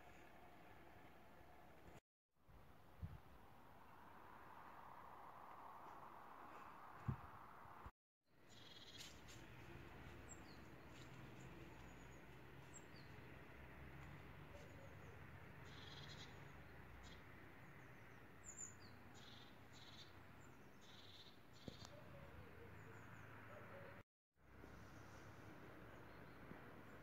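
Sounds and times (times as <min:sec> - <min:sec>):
faint high bird chirps: 0:14.5 - 0:24.0.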